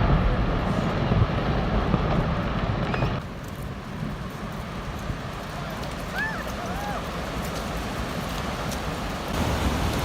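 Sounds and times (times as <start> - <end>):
wave rushing: 5.4 - 10.0.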